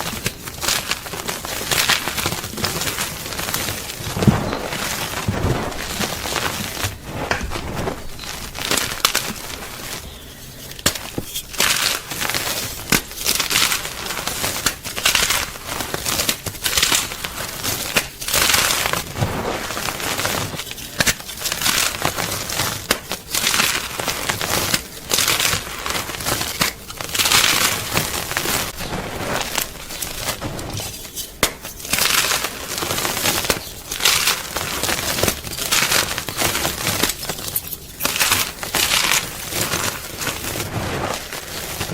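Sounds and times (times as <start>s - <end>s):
chalk being crushed: 0.0s - 16.4s.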